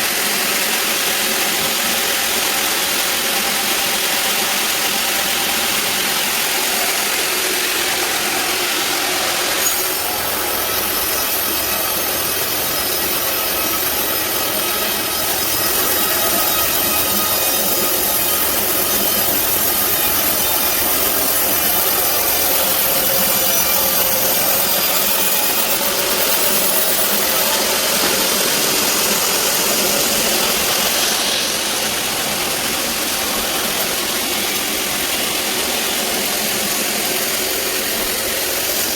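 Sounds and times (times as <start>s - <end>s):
band saw cutting a log: 0.0s - 38.9s.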